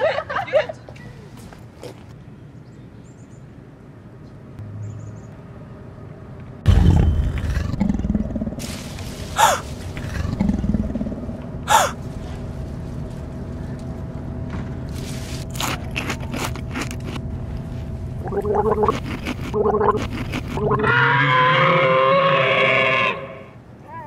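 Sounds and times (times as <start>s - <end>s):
low rumble: 6.6s - 20.9s
warbling animal-like cry: 9.4s - 12.0s, 18.2s - 23.6s
short pitched cries: 11.7s - 12.0s.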